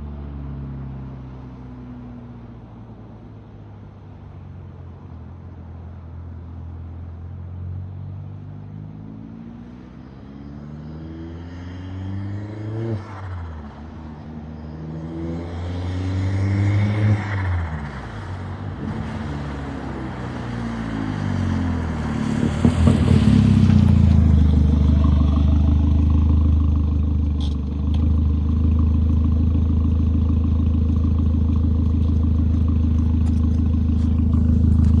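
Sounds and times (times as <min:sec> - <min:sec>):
car engine accelerating: 0:08.7 - 0:35.0.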